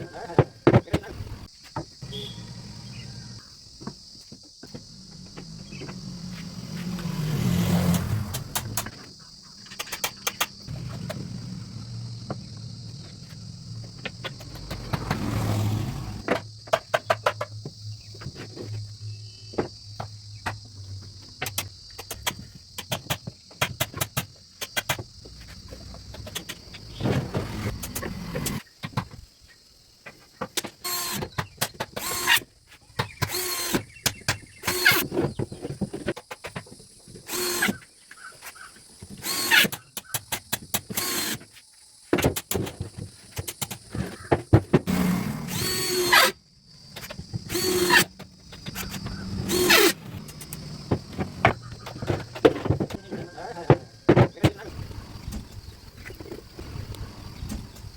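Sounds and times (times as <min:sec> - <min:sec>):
sharp clicks and knocks: 0:07.9 - 0:11.2, 0:21.4 - 0:25.1
small motor humming: 0:44.9 - 0:46.4, 0:47.5 - 0:51.4.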